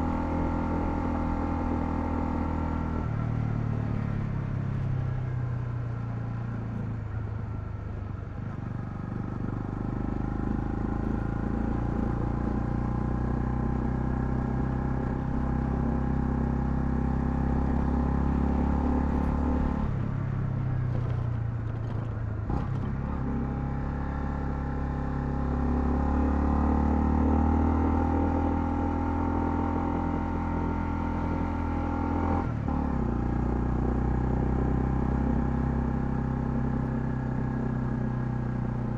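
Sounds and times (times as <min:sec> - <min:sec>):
motorcycle engine running: 0:00.0 - 0:26.1.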